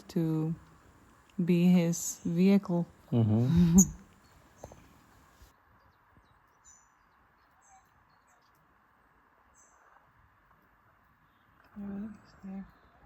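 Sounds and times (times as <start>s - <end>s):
high bird chirps: 3.6s - 4.8s.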